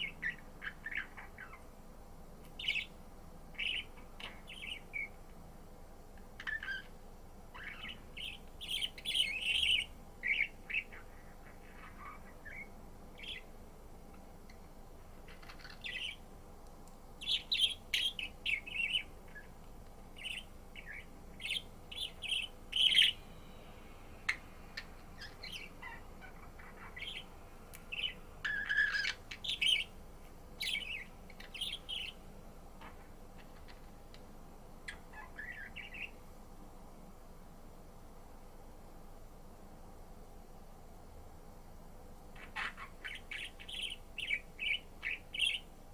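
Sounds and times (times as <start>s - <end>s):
budgerigar chirping and warbling: 0.0s - 1.6s, 2.6s - 3.0s, 3.6s - 5.2s, 6.4s - 6.9s, 7.5s - 13.4s, 15.3s - 16.2s, 17.2s - 19.6s, 20.2s - 23.2s, 24.8s - 27.3s, 27.9s - 29.9s, 30.6s - 32.2s, 34.9s - 36.2s, 42.4s - 45.7s.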